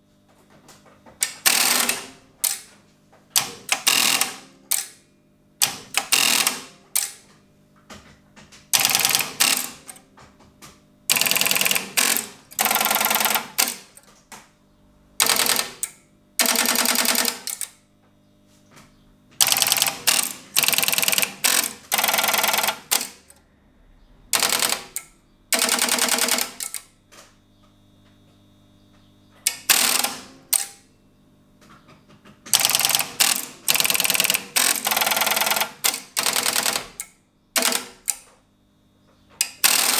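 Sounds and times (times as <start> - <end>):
rapid mechanical switch clicking: 1.2 - 2.7, 3.4 - 5.0, 5.6 - 7.3, 8.8 - 10.0, 11.1 - 14.1, 15.2 - 17.8, 19.4 - 23.4, 24.4 - 26.9, 29.5 - 30.8, 32.5 - 38.3, 39.4 - 39.9.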